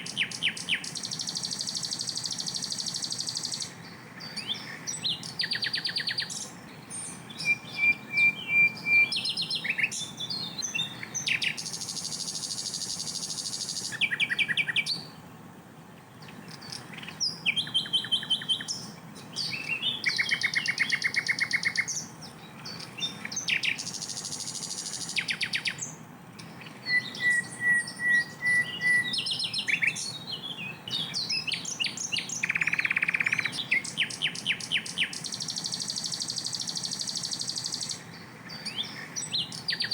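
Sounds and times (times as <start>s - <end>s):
flycatcher singing: 0.0s - 15.3s, 16.1s - 39.9s.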